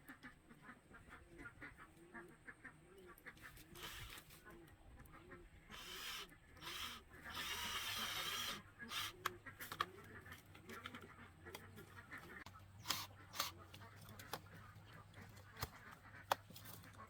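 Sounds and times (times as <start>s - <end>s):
hand tool rasping bamboo: 3.5s - 4.3s, 5.7s - 11.0s, 12.4s - 17.0s.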